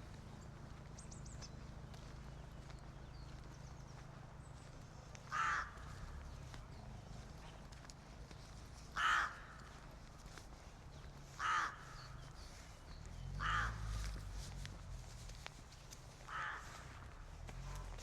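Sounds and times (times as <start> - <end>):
low city rumble: 0.0 - 18.0
bird harsh calls: 5.2 - 6.9, 8.9 - 9.8, 11.0 - 14.3, 16.2 - 17.1.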